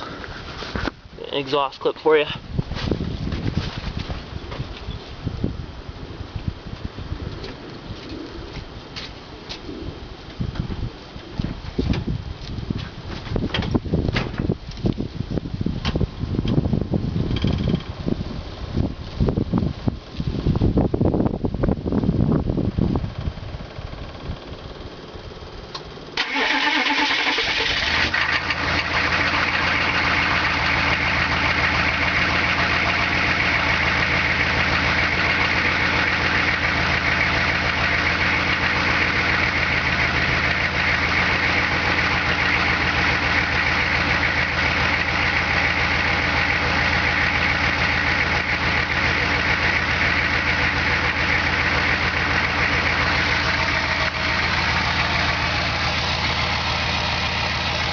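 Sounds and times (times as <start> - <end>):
diesel truck engine starting and idling: 22.9 - 57.9.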